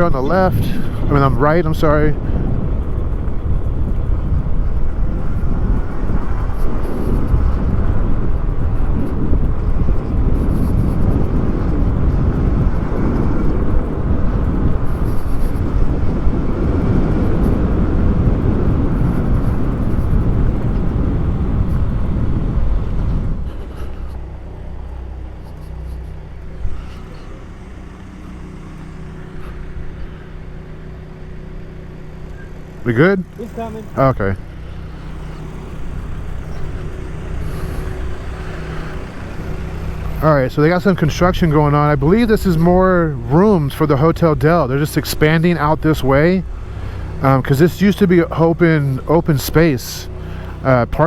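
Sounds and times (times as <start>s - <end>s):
outdoor background noise: 0.0s - 51.0s
wind rushing over microphone: 0.0s - 51.0s.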